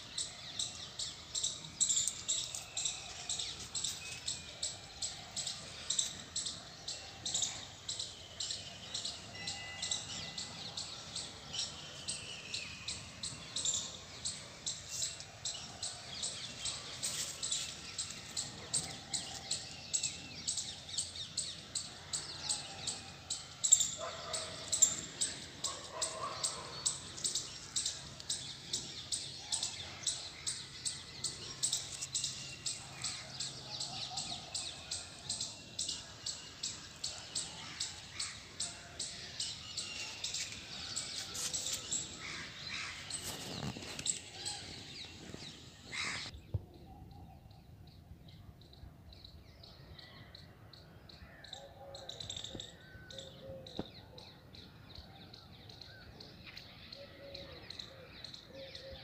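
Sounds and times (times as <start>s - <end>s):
bird chirping: 0.0s - 59.0s.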